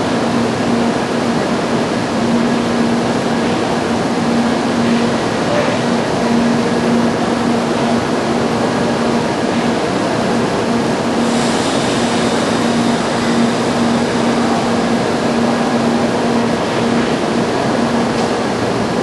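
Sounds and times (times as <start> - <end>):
train equipment rumble and hum: 0.0 - 19.0
hiss: 11.2 - 14.6.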